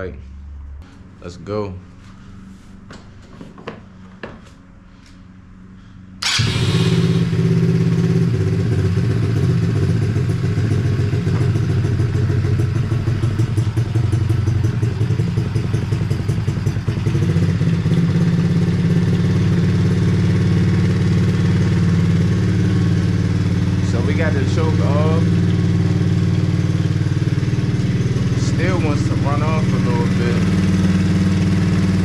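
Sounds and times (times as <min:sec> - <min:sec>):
atv engine starting and running: 0:06.2 - 0:32.0.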